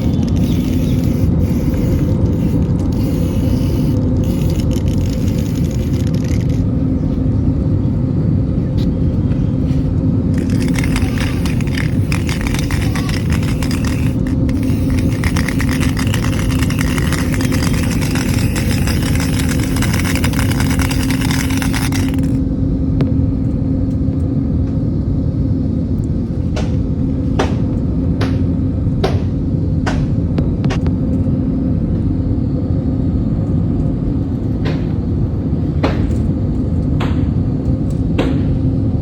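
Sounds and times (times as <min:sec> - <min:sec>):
sharp clicks: 0:00.0 - 0:06.6, 0:10.3 - 0:22.4.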